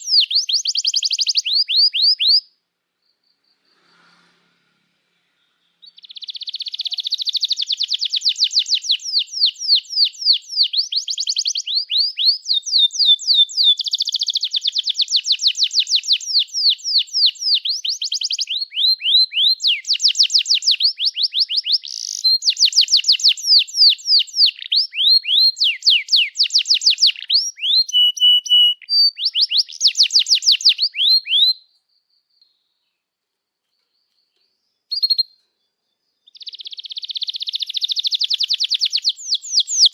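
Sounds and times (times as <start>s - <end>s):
canary singing trills: 0.0s - 2.5s, 5.6s - 32.9s, 33.6s - 39.9s.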